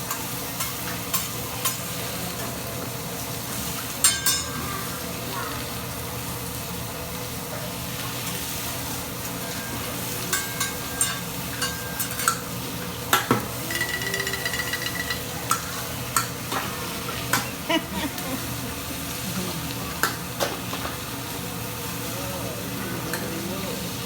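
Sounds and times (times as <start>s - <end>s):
food sizzling on griddle: 0.0s - 24.0s
utensils clinking on dishes: 0.1s - 2.6s, 4.0s - 4.8s, 9.3s - 18.4s
short ringing tone: 13.6s - 15.4s.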